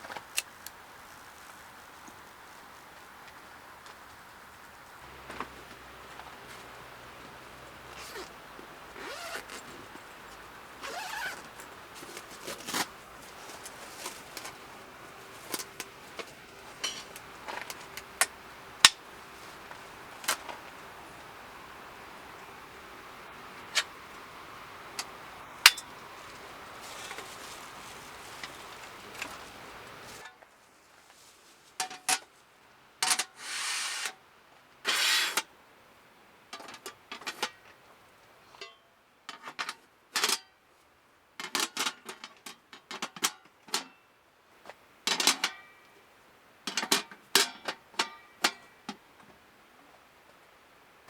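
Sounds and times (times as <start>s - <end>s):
background hiss: 0.0s - 51.0s
clicks and knocks of handling: 11.5s - 14.6s, 36.5s - 37.7s.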